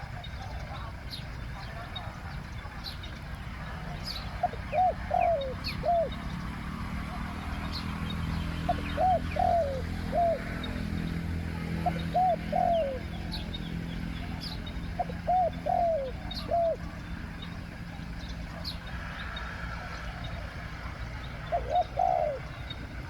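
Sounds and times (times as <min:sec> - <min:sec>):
dove cooing: 0:00.0 - 0:23.0
small birds chirping: 0:00.0 - 0:23.0.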